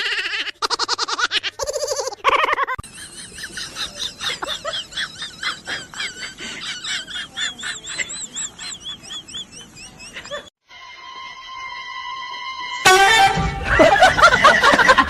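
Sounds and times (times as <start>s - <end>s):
small birds chirping: 2.9s - 10.5s.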